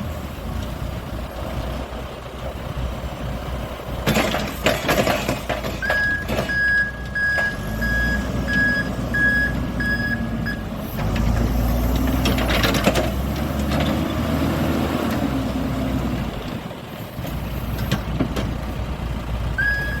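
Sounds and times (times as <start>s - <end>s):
backhoe engine running: 0.0s - 20.0s
reversing alarm beeping: 5.8s - 10.7s, 19.6s - 20.0s.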